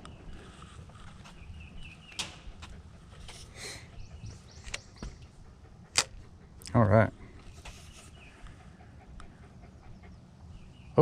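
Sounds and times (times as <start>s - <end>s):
low steady rumble: 0.0s - 11.0s
sharp clicks: 5.9s - 6.2s.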